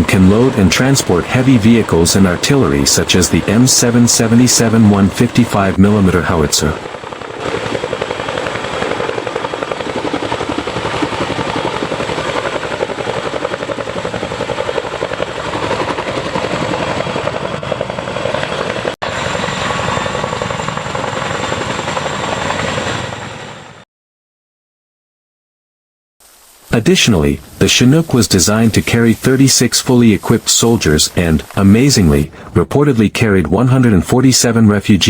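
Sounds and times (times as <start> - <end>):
helicopter rotor beat: 0.0 - 23.8, 26.8 - 35.0.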